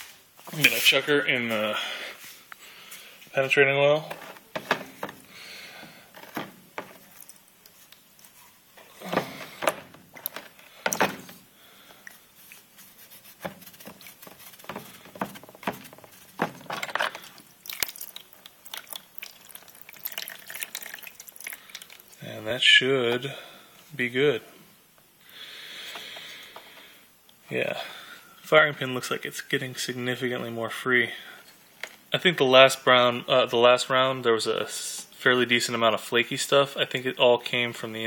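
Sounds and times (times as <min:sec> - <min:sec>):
liquid splashing and dripping: 0:17.2 - 0:22.2.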